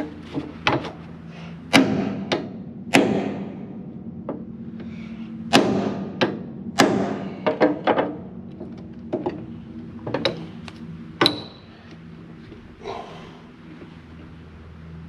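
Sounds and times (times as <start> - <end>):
steady low hum: 0.0 - 15.0
ringing knocks and clanks: 5.6 - 10.6, 11.2 - 11.9.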